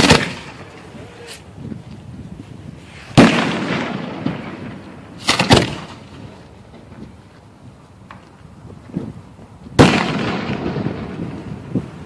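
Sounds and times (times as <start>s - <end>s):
sharp firework bangs: 0.0s - 0.8s, 3.1s - 6.3s, 9.8s - 12.0s.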